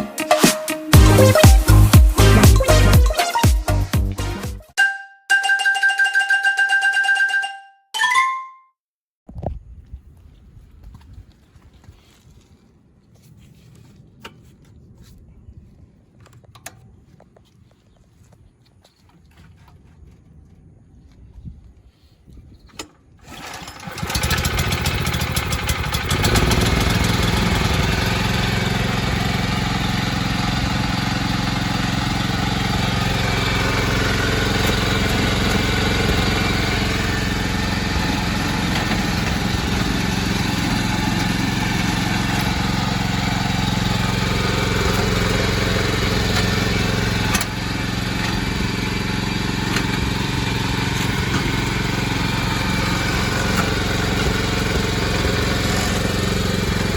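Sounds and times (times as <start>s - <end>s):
tiller engine starting and running: 0.1s - 4.8s, 22.7s - 56.9s.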